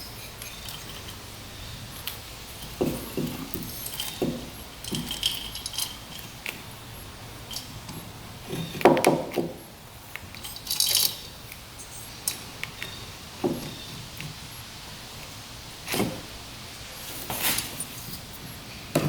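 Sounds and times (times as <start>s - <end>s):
metal parts and tools clinking: 0.0s - 6.7s, 7.4s - 8.8s, 10.3s - 13.9s, 17.1s - 18.4s
metal clatter: 2.0s - 6.4s, 10.4s - 12.1s.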